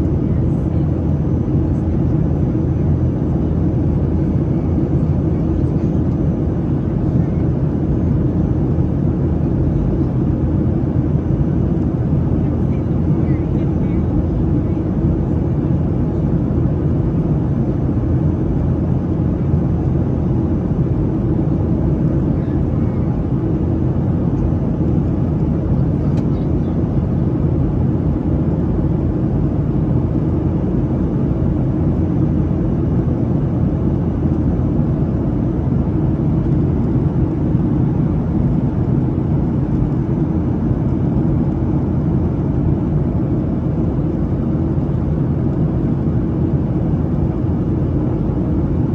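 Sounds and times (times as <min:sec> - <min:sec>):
jet engine drone in cabin: 0:00.0 - 0:48.9.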